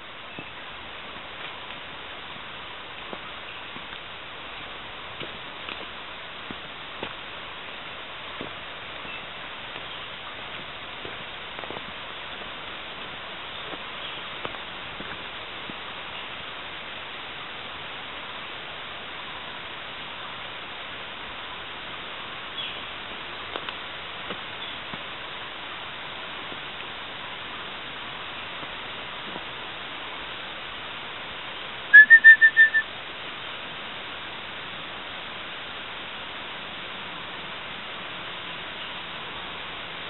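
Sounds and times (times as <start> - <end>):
forest background hiss: 0.0 - 40.0
bird whistling call: 31.9 - 32.9.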